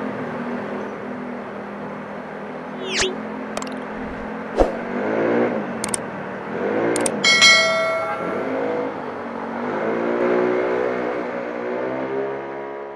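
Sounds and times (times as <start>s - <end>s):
click sound effects: 2.8s - 4.9s, 7.0s - 7.2s
bell ding: 7.2s - 8.8s.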